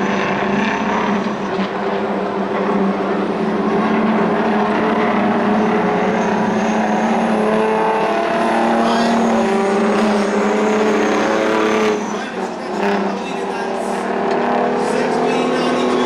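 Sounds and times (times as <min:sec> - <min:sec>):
racing truck diesel engines: 0:00.0 - 0:16.0.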